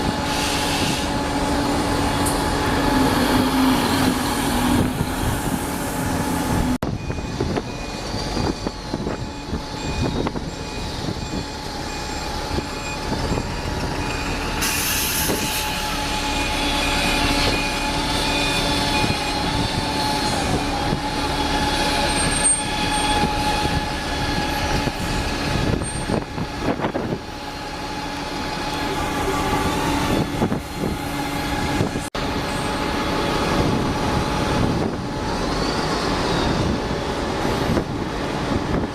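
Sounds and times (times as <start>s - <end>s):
train rumbling: 0.0s - 38.9s.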